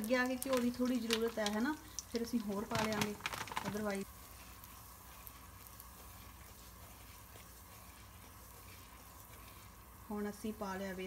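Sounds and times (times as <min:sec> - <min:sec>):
flour sizzling in hot ghee: 0:00.0 - 0:11.0
wooden spatula stirring: 0:00.2 - 0:11.0
steady low hum: 0:01.5 - 0:11.0.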